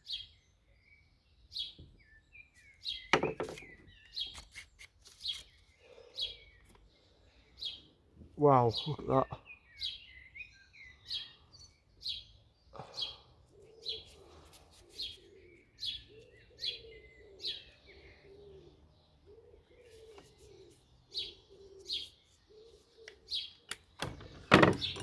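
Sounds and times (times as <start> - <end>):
small bird chirping: 0.0 - 8.0, 8.7 - 25.0
pigeon cooing: 12.8 - 23.3.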